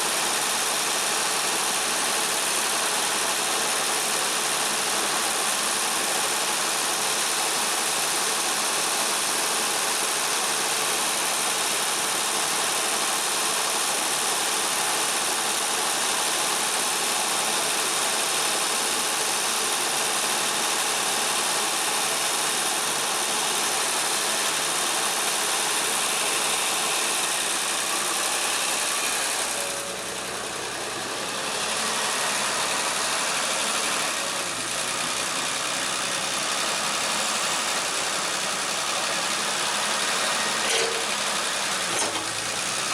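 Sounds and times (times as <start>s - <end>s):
excavator diesel engine droning: 16.5s - 42.9s.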